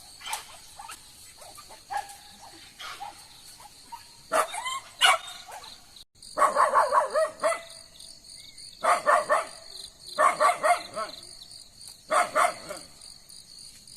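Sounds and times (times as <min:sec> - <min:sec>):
insects chirring: 0:00.0 - 0:13.9
dog yapping: 0:00.2 - 0:05.7, 0:06.4 - 0:07.7, 0:10.2 - 0:11.2, 0:12.1 - 0:12.9.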